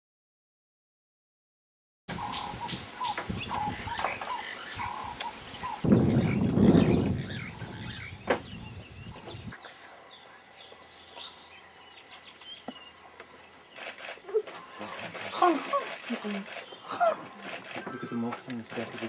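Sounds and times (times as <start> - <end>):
birds chirping and whistling: 2.2 - 18.4.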